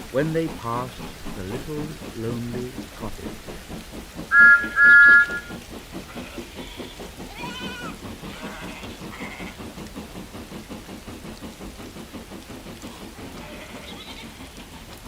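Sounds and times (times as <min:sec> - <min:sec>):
fast regular beat: 0:00.0 - 0:14.4
rain: 0:00.0 - 0:15.0
wavering high call: 0:04.3 - 0:05.5
steam engine whistle toots: 0:04.3 - 0:05.6.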